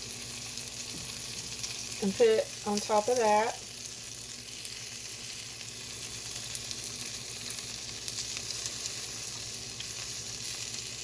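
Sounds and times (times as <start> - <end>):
food sizzling on hot plates: 0.0 - 11.0
small crackles: 0.5 - 11.0.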